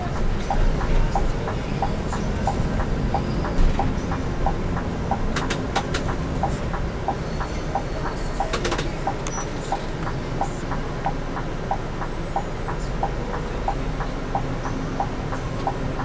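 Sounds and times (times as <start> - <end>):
coach engine low rumble: 0.0 - 16.0
road noise: 0.0 - 16.0.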